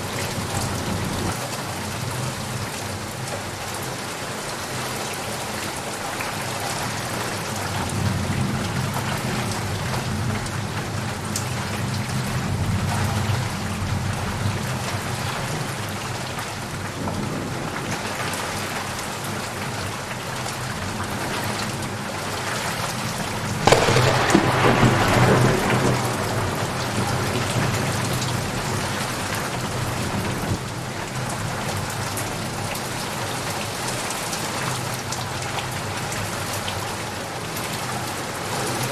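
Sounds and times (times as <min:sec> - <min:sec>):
steady rain falling: 0:00.0 - 0:38.9
distant thunder rumbling: 0:23.6 - 0:30.6
loud thunderclap: 0:23.6 - 0:30.6.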